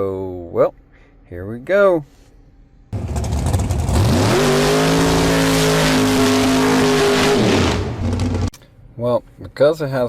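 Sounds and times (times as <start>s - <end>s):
engine revving: 3.0s - 8.5s.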